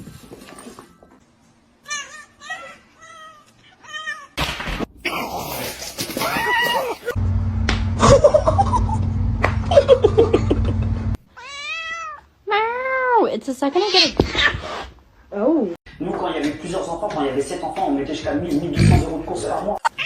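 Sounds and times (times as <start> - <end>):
low hum: 7.1 - 11.2
cats meowing: 11.3 - 12.3.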